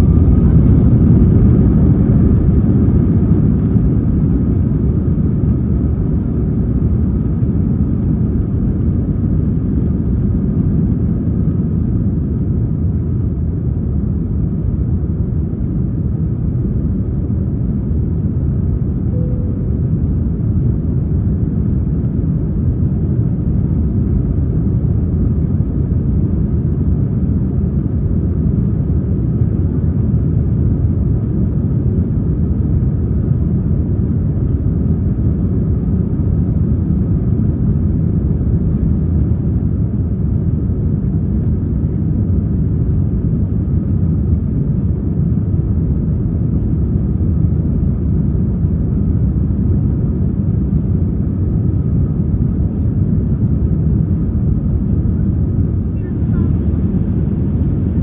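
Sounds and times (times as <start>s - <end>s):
airflow over fuselage: 0.0s - 7.2s, 51.5s - 58.0s
jet engines rumbling: 0.0s - 10.3s, 53.0s - 58.0s.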